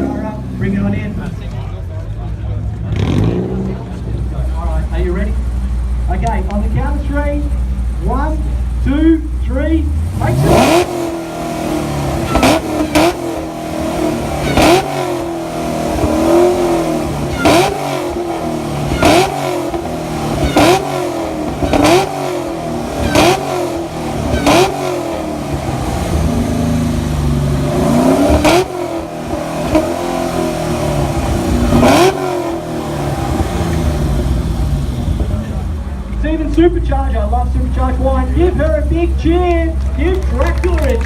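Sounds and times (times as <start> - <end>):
exhaust crack: 0.0 - 41.0
car engine revving in blips: 9.9 - 41.0.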